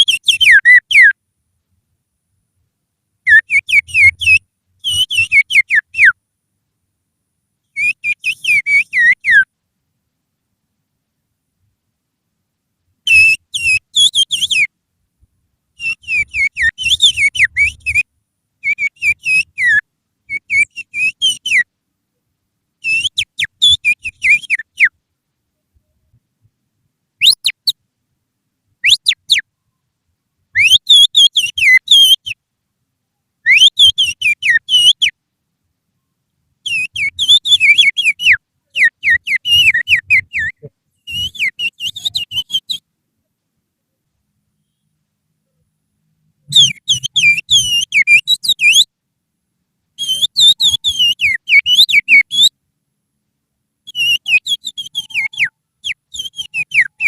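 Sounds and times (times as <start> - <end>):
person finger whistling bird calls: 0.0 - 1.2, 3.3 - 6.2, 7.8 - 9.5, 13.1 - 14.7, 15.8 - 18.0, 18.6 - 21.7, 22.8 - 24.9, 27.2 - 27.8, 28.9 - 29.4, 30.6 - 32.4, 33.5 - 35.1, 36.7 - 42.8, 46.5 - 48.9, 50.0 - 52.5, 53.9 - 57.0.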